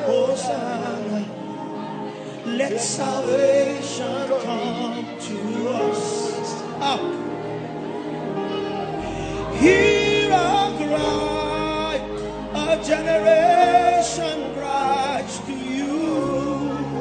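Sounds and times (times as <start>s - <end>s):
sustained chords: 6.4s - 17.0s.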